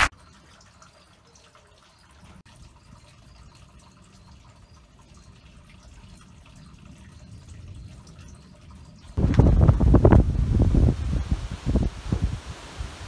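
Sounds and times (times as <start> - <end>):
rain dripping and pattering: 0.0 - 13.0
low storm rumble: 9.2 - 13.0.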